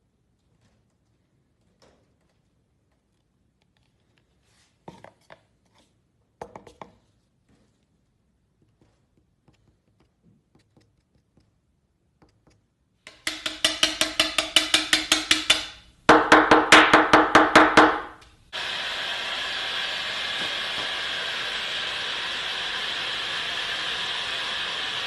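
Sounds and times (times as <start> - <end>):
rapid sharp ringing knocks: 13.1 - 18.2
steady hiss: 18.3 - 25.0.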